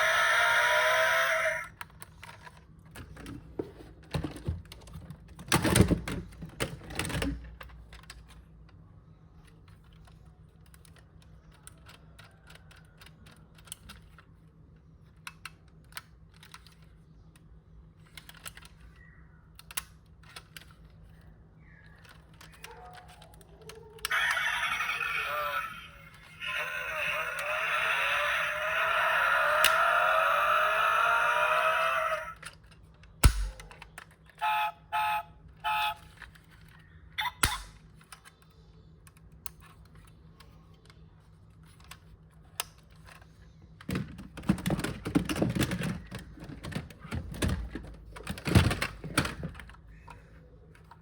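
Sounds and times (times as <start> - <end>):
clicks and taps of handling toy car: 9.4 - 24.1, 37.4 - 51.0.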